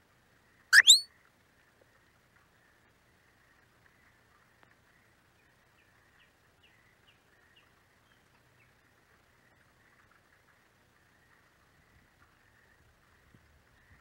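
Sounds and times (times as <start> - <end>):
bird calling high notes: 0.8 - 1.0.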